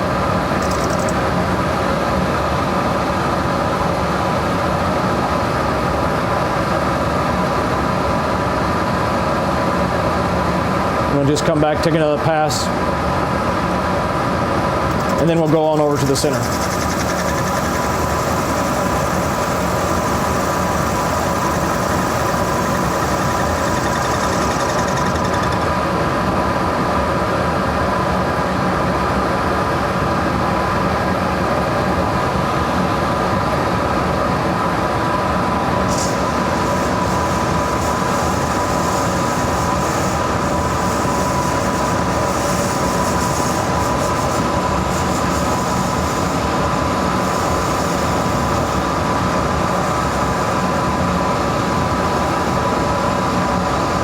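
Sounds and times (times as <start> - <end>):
lathe running with whine: 14.3 - 26.4, 35.8 - 54.0.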